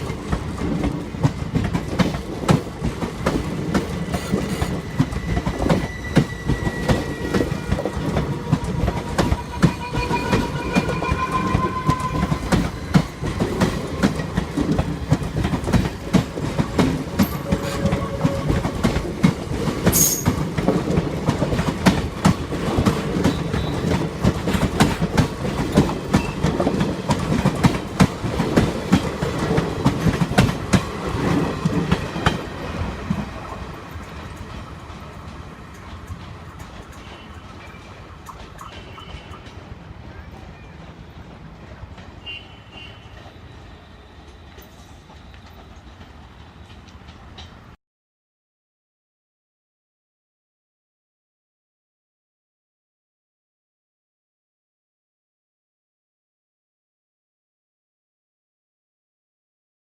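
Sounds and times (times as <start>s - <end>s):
train wheels clicking over rail joints: 0.0s - 9.8s, 12.1s - 39.9s.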